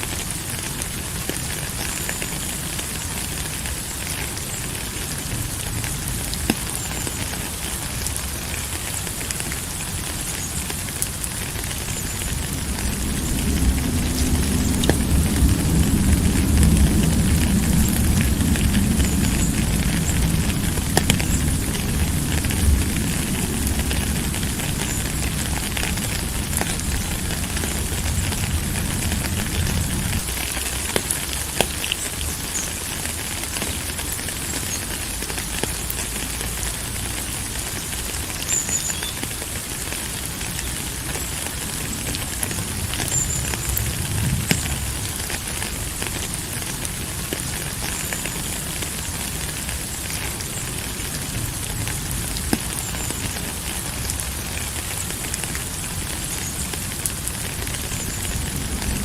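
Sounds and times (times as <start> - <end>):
steady rain: 0.0 - 59.0
deep low rumble: 11.8 - 30.4.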